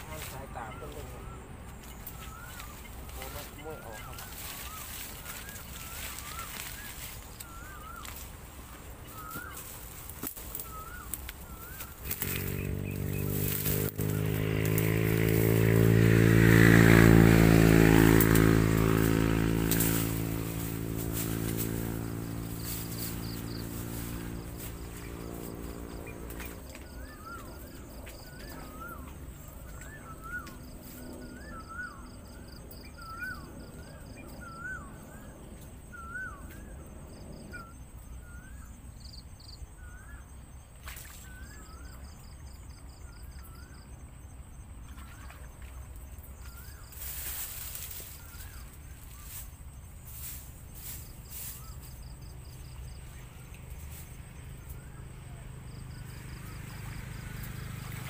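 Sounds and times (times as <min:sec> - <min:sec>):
bird chirping: 0:00.0 - 0:44.0
crickets trilling: 0:00.0 - 0:58.0
rustling: 0:01.8 - 0:15.8, 0:46.6 - 0:52.0
water splashes: 0:44.8 - 0:46.3, 0:56.6 - 0:58.0.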